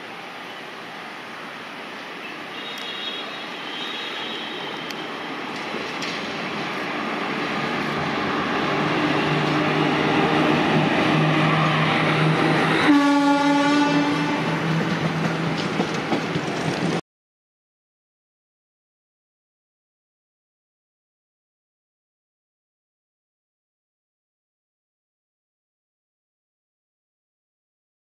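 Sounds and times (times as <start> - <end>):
train wheels on rail: 0.1 - 17.0
locomotive horn blast: 2.5 - 5.1, 11.7 - 14.7.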